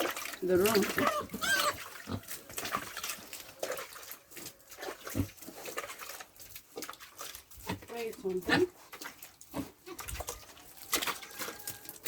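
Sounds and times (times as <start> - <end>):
pigs grunting: 0.6 - 6.2, 7.7 - 10.2
pig squeal: 0.9 - 2.7, 9.9 - 12.0.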